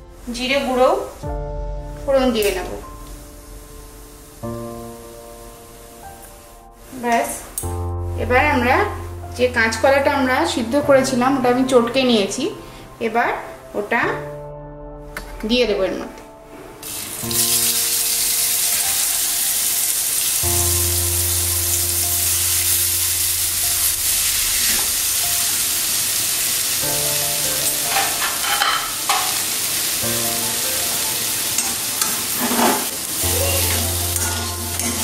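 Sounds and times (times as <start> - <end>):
food sizzling in hot oil: 16.8 - 35.0
metal spatula scraping pan: 27.8 - 29.4, 31.6 - 32.9, 33.6 - 35.0.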